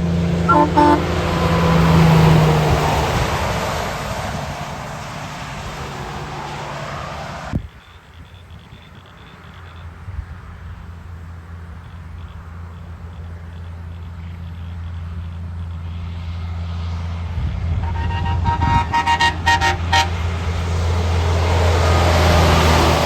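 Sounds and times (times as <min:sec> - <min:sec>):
truck engine passing: 0:00.0 - 0:07.8, 0:08.7 - 0:23.0
road noise: 0:00.0 - 0:23.0
truck horn short blasts: 0:00.4 - 0:01.2, 0:17.7 - 0:20.4.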